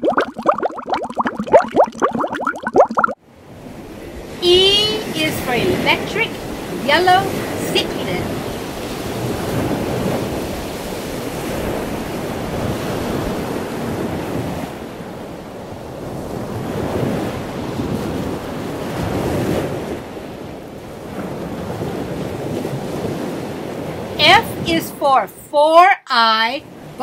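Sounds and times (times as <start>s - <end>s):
ocean surf washing in and out: 0.0s - 25.7s, 26.4s - 27.0s.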